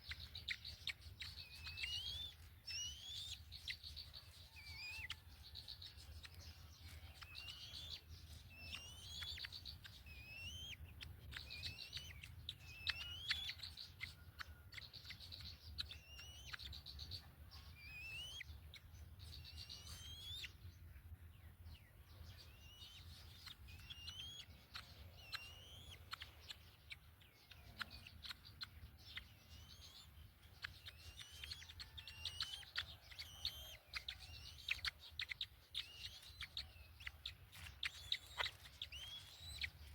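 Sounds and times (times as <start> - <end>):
birds whistling and trilling: 0.0 - 39.9.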